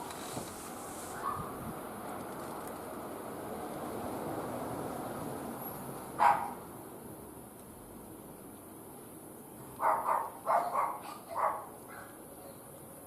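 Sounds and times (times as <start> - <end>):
dog barking: 1.2 - 1.5, 6.2 - 6.6, 9.8 - 12.2.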